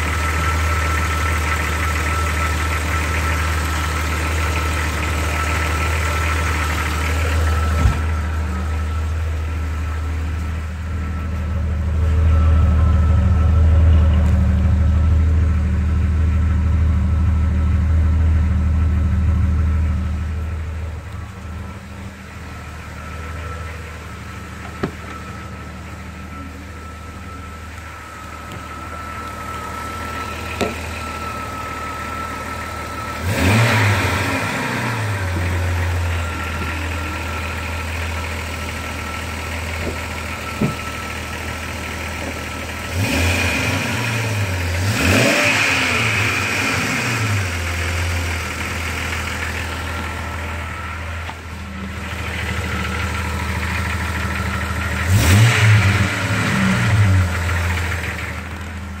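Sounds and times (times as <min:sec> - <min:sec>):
car engine idling and revving: 0:00.0 - 0:59.0
thin steady whine: 0:04.2 - 0:42.9.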